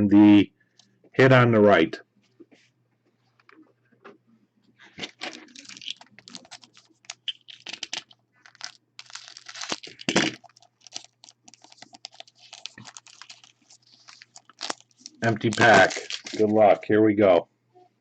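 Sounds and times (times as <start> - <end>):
card pack wrapper crinkling: 4.8 - 16.6.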